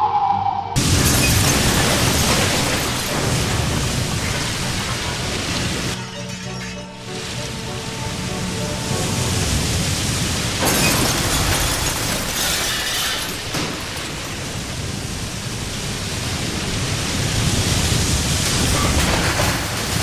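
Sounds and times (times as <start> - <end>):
storm wind and water rushing: 0.8 - 6.3, 7.0 - 20.0.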